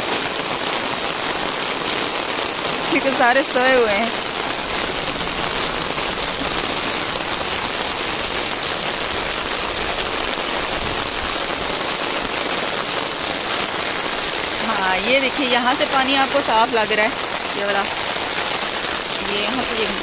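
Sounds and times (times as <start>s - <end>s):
rain falling on standing water: 0.0s - 20.0s.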